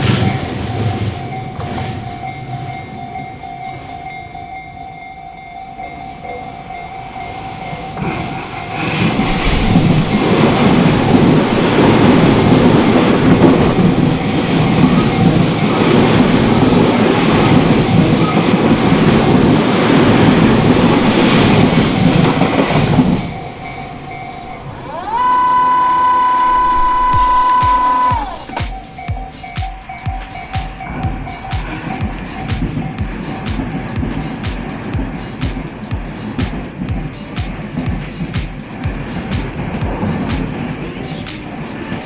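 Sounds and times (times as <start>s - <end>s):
rumble of train wheels on rail: 0.0s - 42.0s
loud steady high tone: 23.4s - 34.2s.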